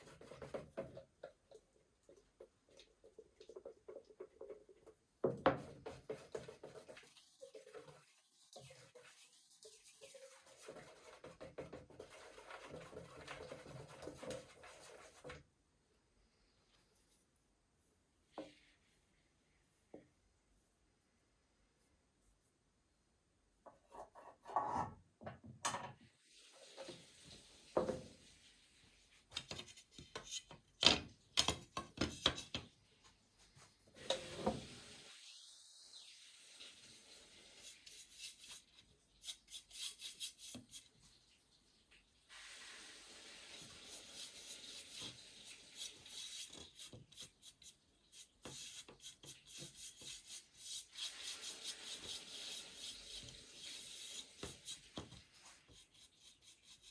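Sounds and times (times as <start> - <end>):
brush rubbing on wood: 5.8 - 15.3, 37.6 - 40.9, 43.6 - 56.9.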